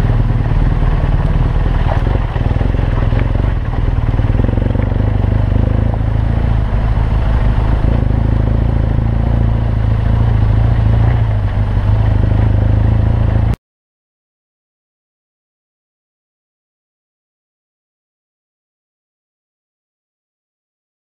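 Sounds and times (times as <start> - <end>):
engine clatter: 0.0 - 13.6
motorcycle engine running: 0.0 - 13.6.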